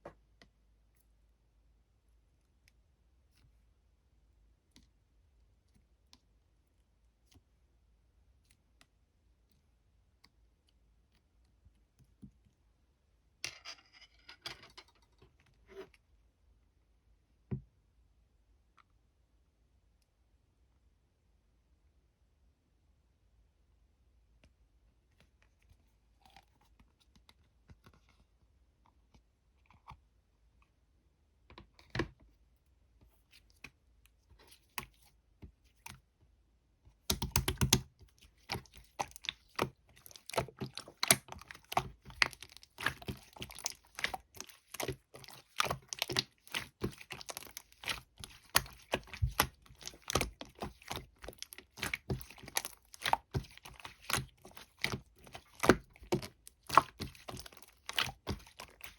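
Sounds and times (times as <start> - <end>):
slime popping and crackling: 37.0 - 58.9
slime squished by hand: 37.0 - 58.9.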